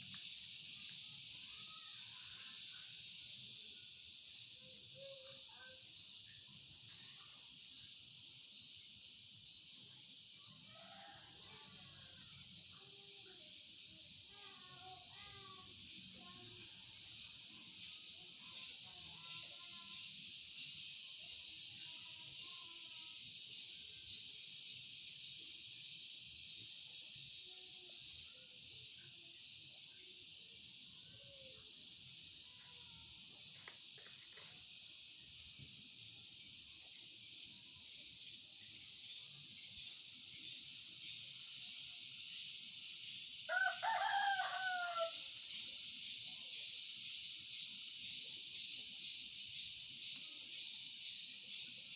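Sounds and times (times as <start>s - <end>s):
steady high hiss: 0.0s - 51.9s
rooster crowing: 10.6s - 12.1s, 43.5s - 45.3s.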